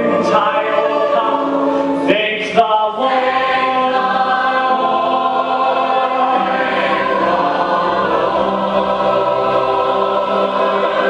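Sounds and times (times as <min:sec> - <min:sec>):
cast singing held chords in chorus: 0:00.0 - 0:11.0.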